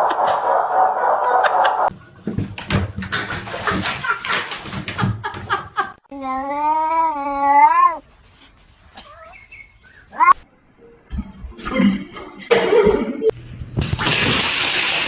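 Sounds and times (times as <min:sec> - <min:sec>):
cat yowling: 0:06.5 - 0:08.0.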